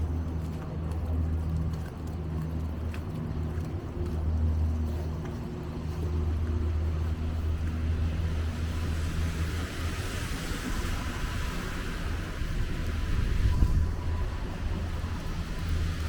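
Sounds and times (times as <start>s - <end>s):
vehicle engine hum: 0.0s - 16.0s
hiss of tyres on wet street: 8.0s - 16.0s.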